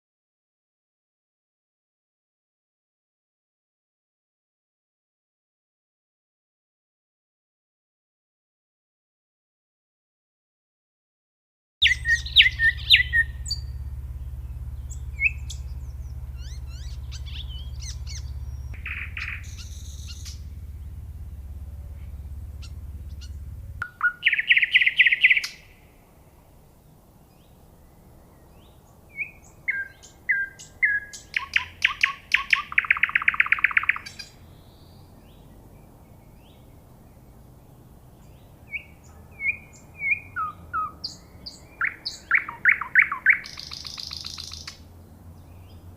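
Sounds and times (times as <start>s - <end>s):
songbird singing whistled phrases: 11.8s - 20.5s, 22.6s - 25.7s, 28.6s - 35.4s, 38.6s - 44.8s
low hum: 11.8s - 26.8s.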